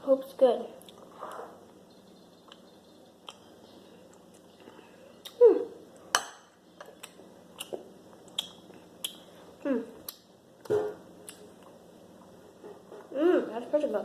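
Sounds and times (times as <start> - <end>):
mouth smacks and clicks: 2.4 - 3.5, 4.1 - 5.4, 6.9 - 9.3
person humming mm while tasting: 9.6 - 10.1.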